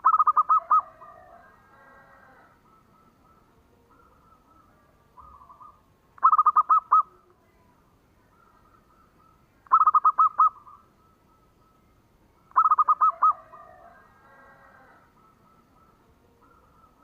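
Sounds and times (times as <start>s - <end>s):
dove cooing: 0.0s - 7.3s, 8.2s - 11.8s, 12.4s - 17.0s.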